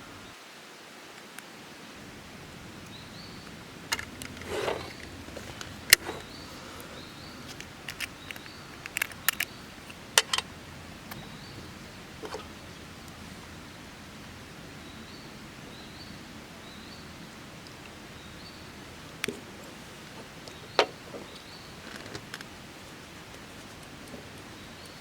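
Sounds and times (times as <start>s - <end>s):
steady outdoor hiss: 0.0s - 25.0s
clicks and knocks of handling: 3.9s - 10.5s
short scrape: 4.4s - 6.8s.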